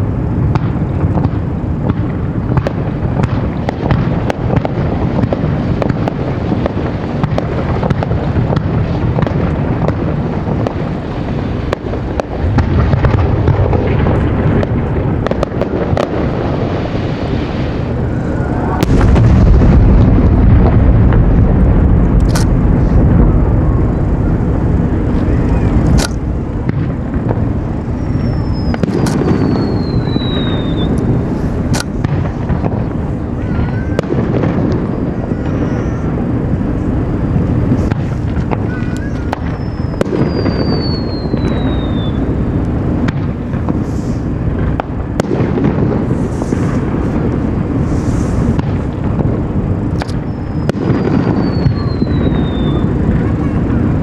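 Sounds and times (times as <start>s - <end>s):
fireworks booming and cracking: 0.0s - 54.0s
whistling firework shell: 27.8s - 36.9s, 37.6s - 42.4s, 50.0s - 53.8s.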